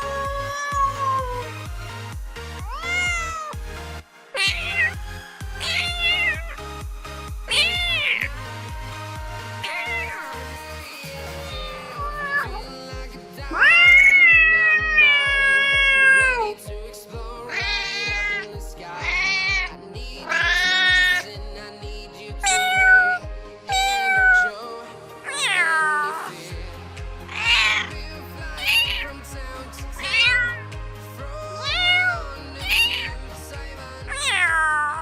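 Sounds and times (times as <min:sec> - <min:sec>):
cats meowing: 0:00.0 - 0:01.6, 0:02.6 - 0:03.6, 0:04.4 - 0:05.0, 0:05.6 - 0:06.6, 0:07.5 - 0:08.3, 0:09.6 - 0:10.6, 0:11.3 - 0:12.9, 0:13.5 - 0:16.6, 0:17.4 - 0:21.3, 0:22.4 - 0:24.6, 0:25.2 - 0:26.4, 0:27.3 - 0:28.0, 0:28.6 - 0:29.2, 0:30.0 - 0:30.7, 0:31.6 - 0:33.2, 0:34.1 - 0:35.0
background music with beat: 0:00.0 - 0:35.0.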